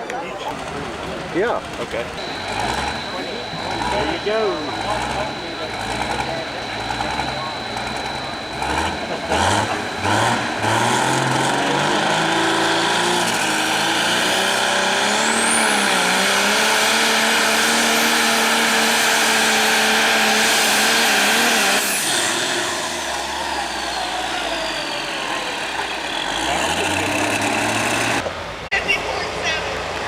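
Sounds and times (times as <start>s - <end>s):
tractor diesel engine at full throttle: 0.0s - 30.0s
high turbo whistle: 2.2s - 25.8s.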